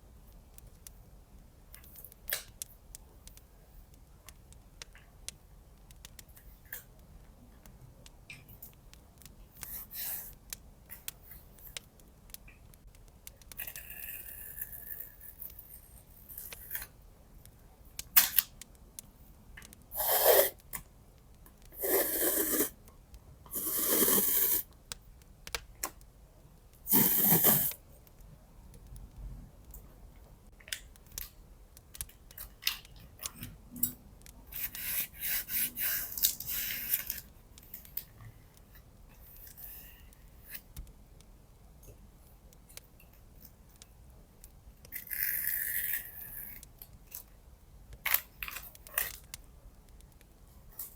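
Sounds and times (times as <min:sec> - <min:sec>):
light taps and clicks: 0:40.1 - 0:45.0.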